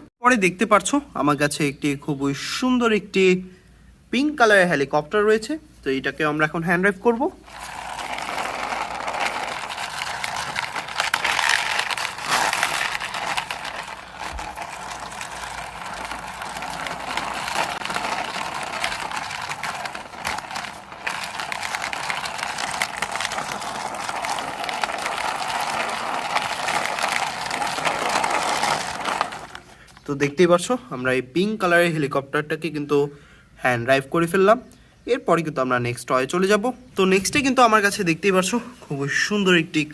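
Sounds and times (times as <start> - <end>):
toy wheels rattling and scraping: 7.4 - 30.0.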